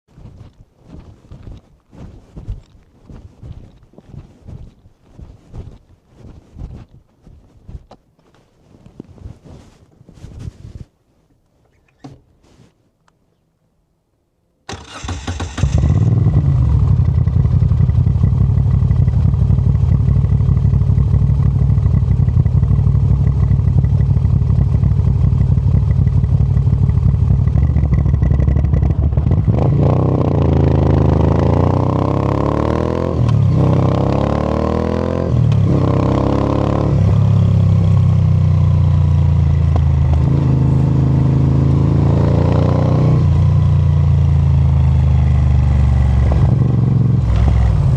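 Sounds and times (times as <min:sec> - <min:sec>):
motorcycle engine: 0:14.7 - 0:47.9.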